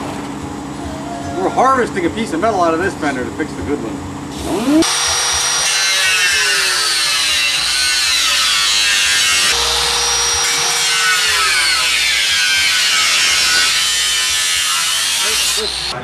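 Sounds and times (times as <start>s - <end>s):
power tool cutting sheet metal: 4.3s - 16.0s.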